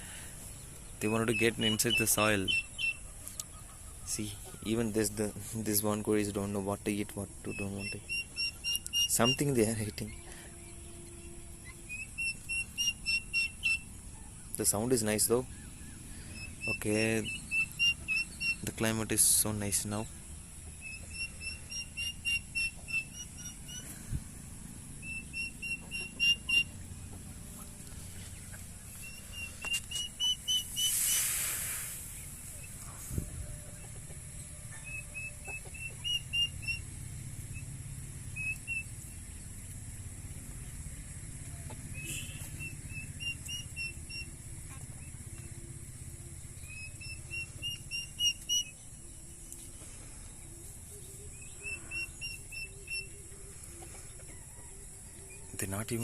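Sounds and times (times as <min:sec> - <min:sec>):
faint outdoor background: 0:00.0 - 0:56.0
bird whistled chirps: 0:00.9 - 0:04.7, 0:07.4 - 0:14.4, 0:15.5 - 0:18.8, 0:20.8 - 0:24.0, 0:25.0 - 0:26.8, 0:28.8 - 0:31.5, 0:34.8 - 0:36.9, 0:38.3 - 0:39.0, 0:41.9 - 0:44.4, 0:46.6 - 0:49.0, 0:51.0 - 0:53.4
brief rushing hiss: 0:30.7 - 0:33.2.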